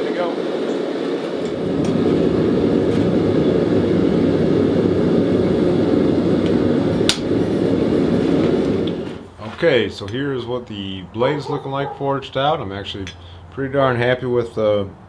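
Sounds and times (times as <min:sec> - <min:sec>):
forge burner roaring: 0:00.0 - 0:09.4.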